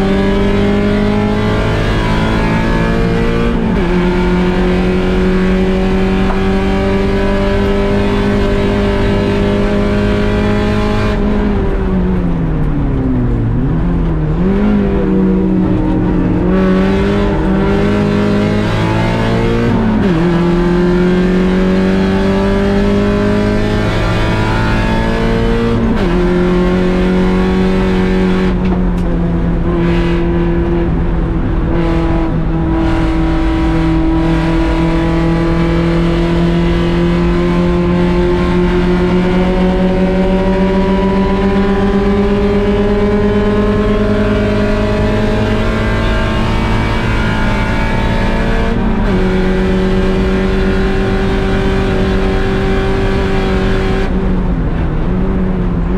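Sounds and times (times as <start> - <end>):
race car engine accelerating: 0.0 - 55.9.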